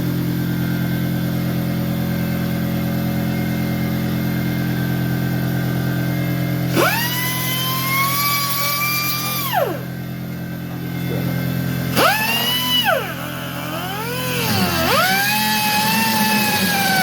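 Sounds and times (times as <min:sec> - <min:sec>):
air cutoff wheel whining: 0:00.0 - 0:17.0
cutting wheel biting sheet metal: 0:06.7 - 0:09.9, 0:11.9 - 0:17.0.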